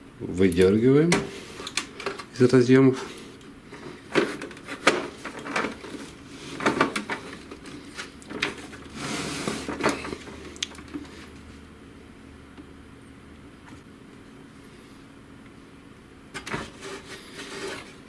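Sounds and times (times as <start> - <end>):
scraping rustle: 1.2 - 11.6, 16.4 - 18.0.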